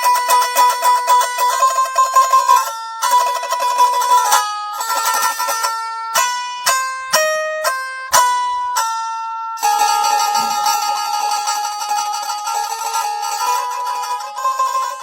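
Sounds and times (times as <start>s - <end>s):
plucked string instrument melody: 0.0s - 15.0s.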